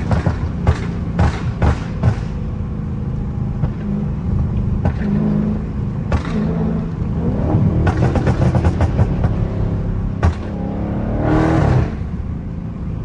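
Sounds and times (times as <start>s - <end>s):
sharp exhaust pops: 0.0s - 2.6s, 3.6s - 7.1s, 7.7s - 10.7s
car engine exhaust drone: 0.0s - 13.0s.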